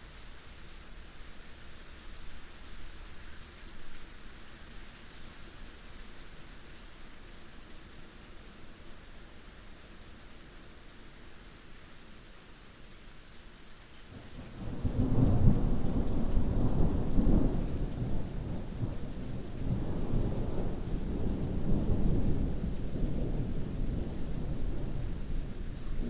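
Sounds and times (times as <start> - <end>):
heavy rain: 0.0 - 26.0
thunder rumbling: 14.4 - 26.0.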